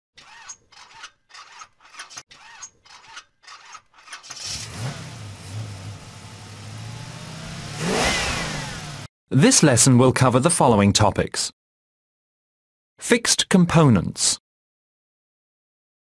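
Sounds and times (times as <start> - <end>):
car engine cranking and starting: 4.1 - 9.1.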